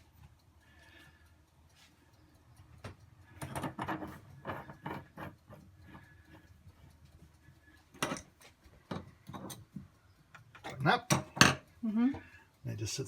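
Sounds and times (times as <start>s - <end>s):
metal parts clicking and knocking: 3.4s - 5.6s, 7.9s - 11.7s.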